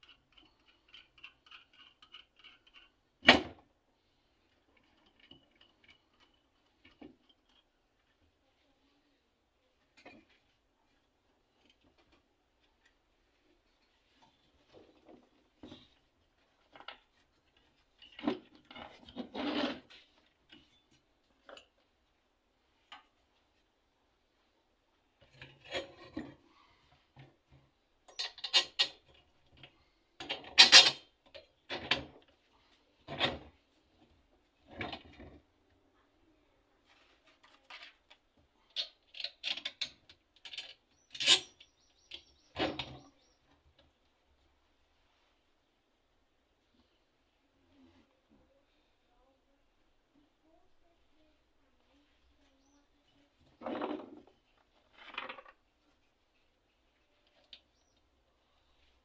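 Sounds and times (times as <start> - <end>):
scraping and rubbing: 13.3 - 20.7.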